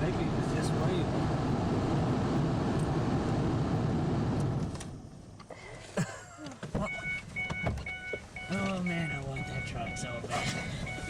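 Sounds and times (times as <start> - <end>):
vehicle engine running: 0.0 - 4.8
high beeping tone: 6.9 - 11.0.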